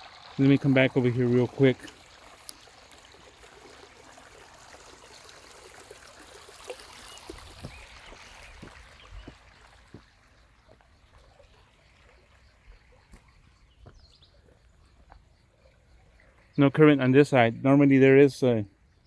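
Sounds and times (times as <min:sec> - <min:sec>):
water trickling: 0:00.0 - 0:18.6
faint bird chirps: 0:06.9 - 0:17.5
soft footsteps: 0:07.3 - 0:11.3, 0:13.0 - 0:15.3.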